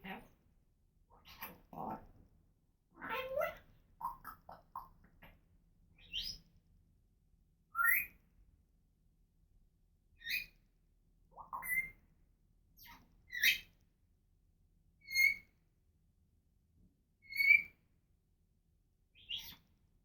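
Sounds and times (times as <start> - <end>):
parrot whistles and chirps: 7.7 - 8.2, 11.4 - 12.0, 17.3 - 17.8.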